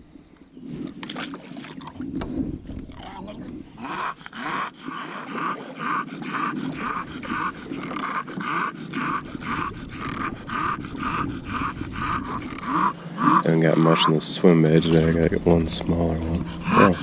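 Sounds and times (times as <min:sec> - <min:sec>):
dog panting with snorting rattle: 0:03.8 - 0:17.0.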